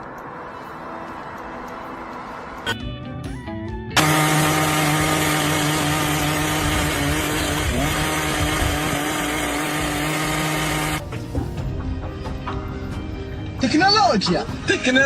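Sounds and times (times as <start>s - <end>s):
power tool running: 4.0s - 11.0s.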